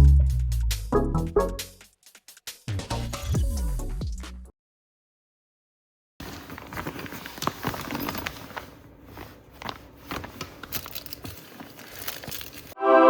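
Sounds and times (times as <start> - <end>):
objects being handled: 6.2 - 12.8.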